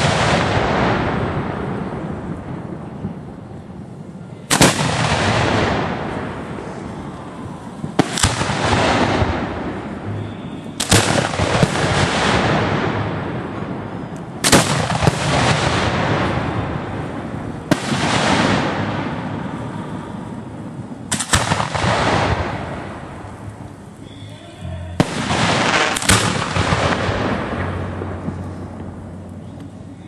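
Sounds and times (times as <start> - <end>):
noisy firework tail: 0.0 - 30.0
firework shell bangs: 21.1 - 23.4, 25.0 - 29.0.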